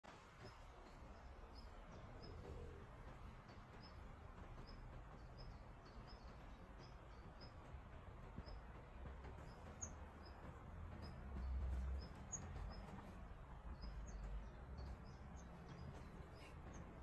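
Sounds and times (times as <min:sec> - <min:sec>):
small bird chirping: 0:08.3 - 0:17.0.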